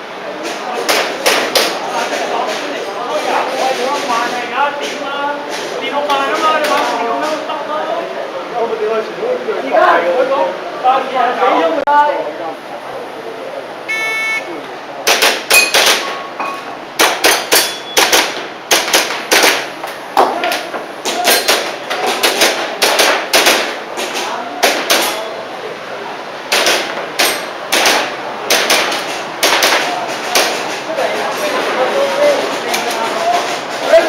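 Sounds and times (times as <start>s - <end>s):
airsoft pistol shots: 15.0s - 16.1s, 17.0s - 19.7s, 21.2s - 23.8s, 26.5s - 30.6s.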